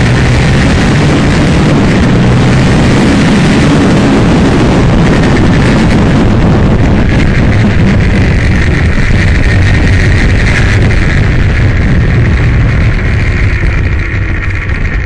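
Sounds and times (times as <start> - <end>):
dense rush of noise: 0.0 - 15.0
motorcycle engine running under load: 0.0 - 15.0.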